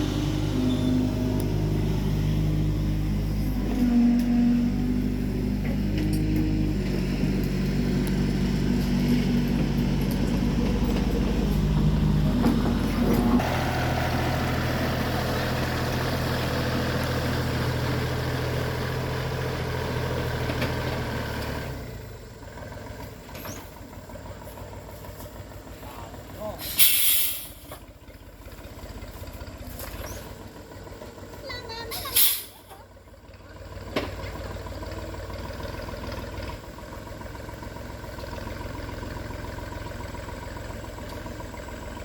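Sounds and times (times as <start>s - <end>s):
heavy machine engine running: 0.0s - 42.0s.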